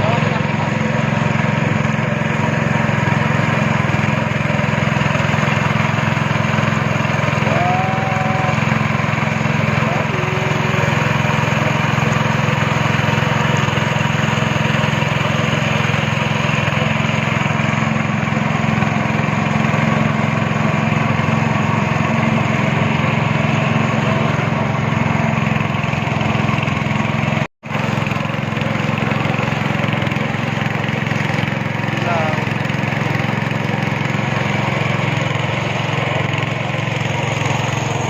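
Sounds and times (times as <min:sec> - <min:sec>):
speedboat engine running: 0:00.0 - 0:38.0.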